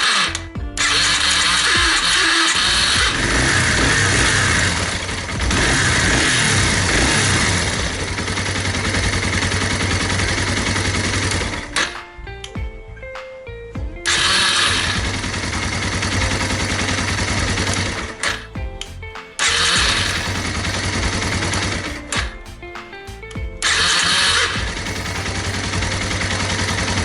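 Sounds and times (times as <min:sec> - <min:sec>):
starter motor cranking harshly: 0:00.8 - 0:11.6.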